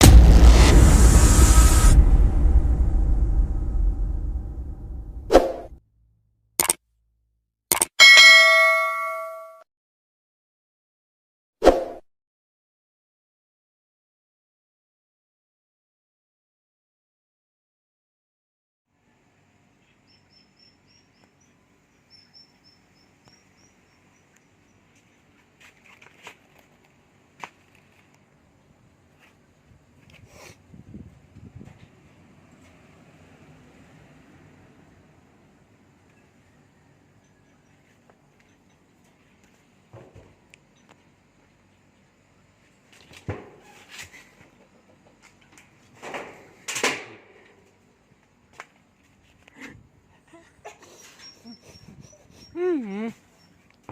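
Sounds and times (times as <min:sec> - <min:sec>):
small bird chirping: 0:19.8 - 0:25.2
rustles and clicks: 0:25.3 - 0:28.2.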